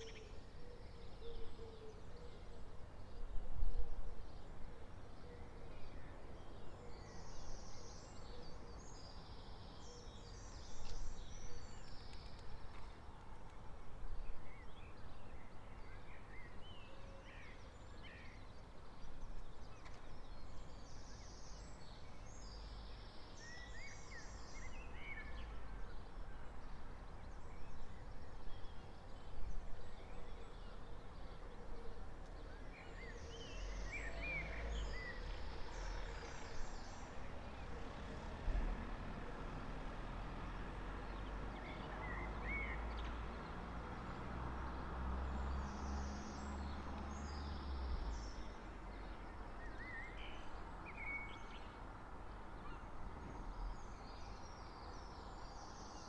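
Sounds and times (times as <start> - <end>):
songbirds chirping and trilling: 0.0 - 56.0
low street rumble: 17.7 - 56.0.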